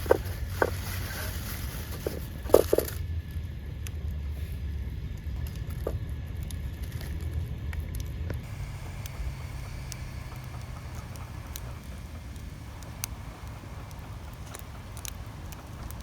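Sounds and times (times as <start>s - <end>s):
wood fire crackling: 5.1s - 16.0s
low rumble: 8.4s - 16.0s.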